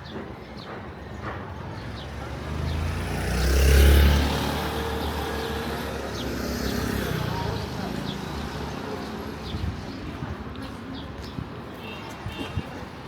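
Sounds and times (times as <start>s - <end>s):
street noise: 0.0s - 13.0s
motor vehicle passing: 1.9s - 9.0s.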